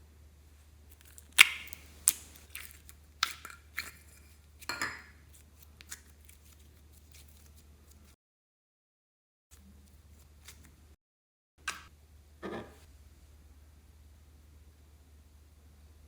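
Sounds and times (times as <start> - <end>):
slime popping and clicking: 0.9 - 3.4.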